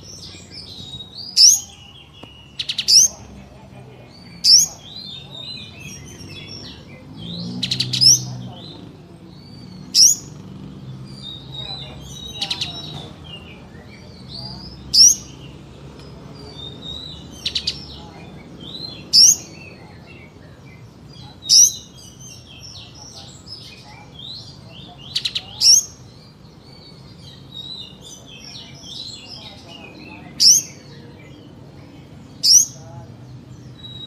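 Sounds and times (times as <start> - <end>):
bird trills: 0.0 - 3.4, 9.4 - 13.1, 32.4 - 32.8
soft bird twittering: 0.0 - 34.0
bird calls sweeping upward: 4.2 - 31.6.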